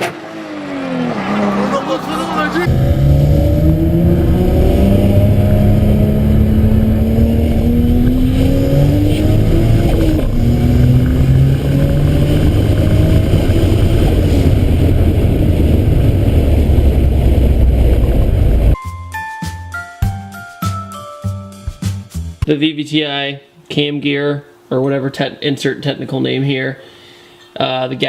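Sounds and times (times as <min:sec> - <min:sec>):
car engine accelerating: 0:00.0 - 0:18.8.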